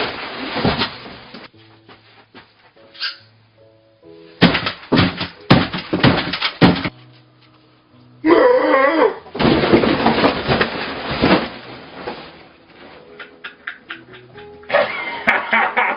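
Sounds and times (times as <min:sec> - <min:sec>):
quiet background music: 0:00.0 - 0:15.9
loud clattering crashes: 0:04.4 - 0:06.9, 0:09.4 - 0:12.6
wavering cry: 0:08.2 - 0:09.3.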